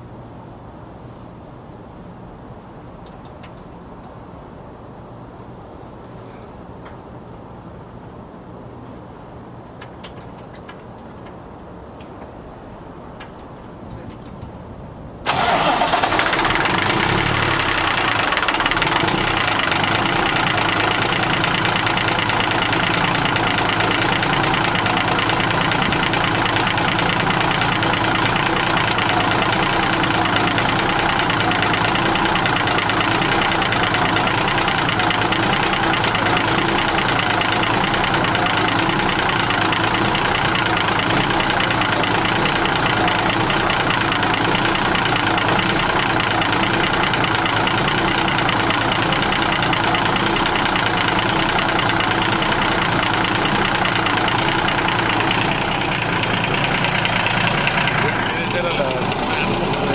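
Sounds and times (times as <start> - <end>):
diesel truck engine idling: 15.2 - 59.9.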